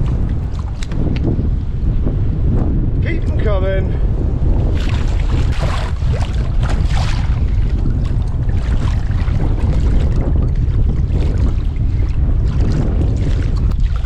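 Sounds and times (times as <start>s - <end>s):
water splashing against kayak: 0.0s - 1.3s, 4.6s - 14.0s
wind buffeting microphone: 0.0s - 14.0s.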